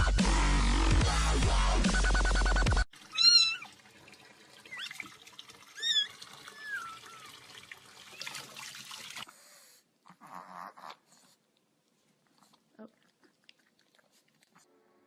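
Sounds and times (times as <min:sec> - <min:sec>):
cat meowing: 0:03.1 - 0:03.7.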